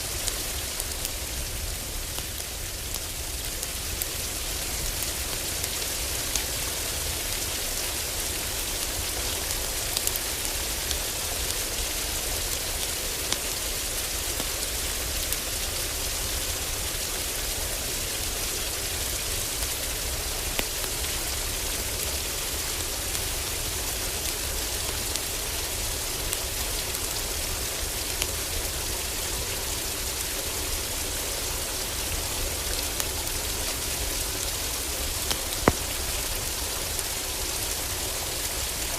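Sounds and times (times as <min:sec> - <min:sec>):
heavy rain drumming on roof: 0:00.0 - 0:38.9
wood fire crackling: 0:00.2 - 0:16.2, 0:29.9 - 0:38.9.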